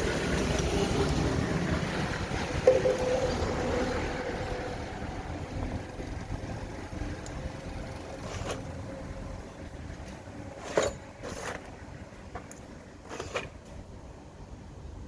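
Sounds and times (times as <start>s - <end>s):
low steady rumble: 0.0s - 10.6s.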